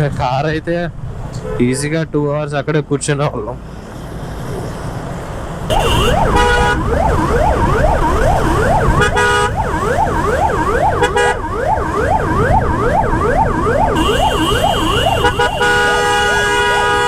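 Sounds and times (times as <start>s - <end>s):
road and engine rumble: 0.0s - 17.0s
vehicle horns honking: 1.4s - 1.7s, 5.7s - 6.9s, 8.9s - 9.6s, 11.0s - 11.4s, 13.9s - 17.0s
emergency siren wailing: 5.7s - 17.0s.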